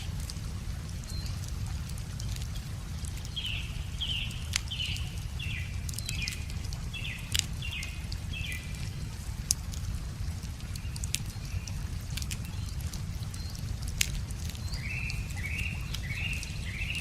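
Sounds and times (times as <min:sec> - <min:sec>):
running water rushing: 0:00.0 - 0:17.0
wood fire crackling and popping: 0:00.0 - 0:17.0
bird chirping: 0:14.6 - 0:17.0.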